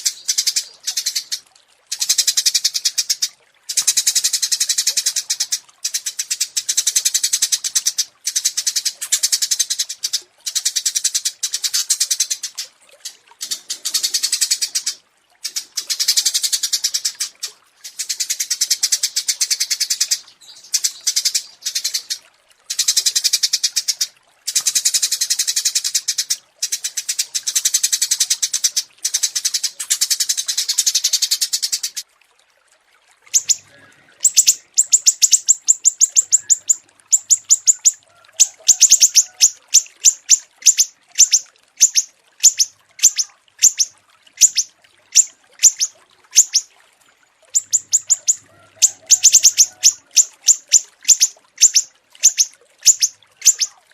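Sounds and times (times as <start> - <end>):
songbirds trilling: 33.3 - 46.7, 47.5 - 53.8
bird chirps: 33.4 - 38.0, 38.7 - 46.7, 47.6 - 53.8.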